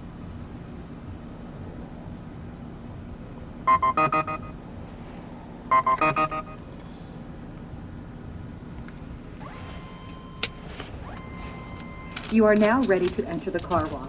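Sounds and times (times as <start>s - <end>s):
minivan engine idling: 0.0s - 14.0s
payment terminal beeping: 3.7s - 4.6s, 5.7s - 6.7s, 9.4s - 14.0s.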